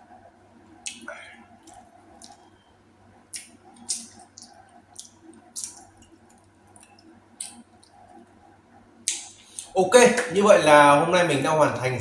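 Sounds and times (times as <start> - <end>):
wet chewing and lip smacks: 0.8 - 2.6, 3.3 - 8.3.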